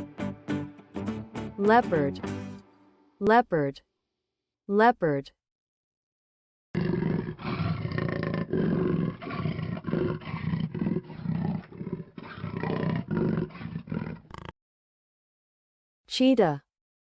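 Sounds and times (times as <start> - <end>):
leopard grunting roars: 6.8 - 14.5.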